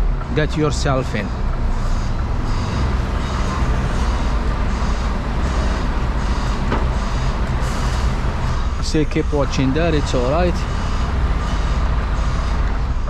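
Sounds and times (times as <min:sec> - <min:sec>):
lorry diesel engine idling: 0:00.0 - 0:13.0.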